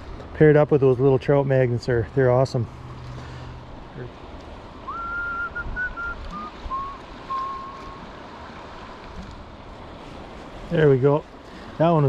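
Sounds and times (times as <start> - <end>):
rushing spillway water: 0.0 - 12.0
person whistling: 4.9 - 8.0.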